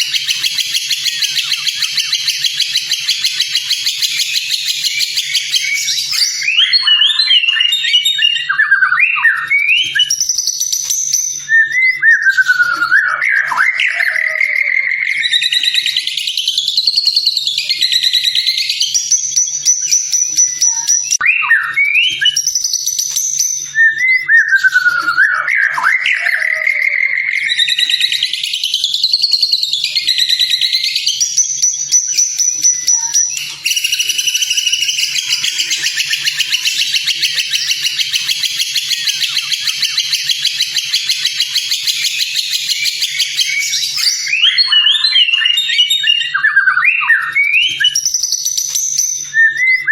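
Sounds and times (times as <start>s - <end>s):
rapid bird chattering: 0.0s - 8.5s, 25.6s - 46.4s
bird whistled song: 0.0s - 49.9s.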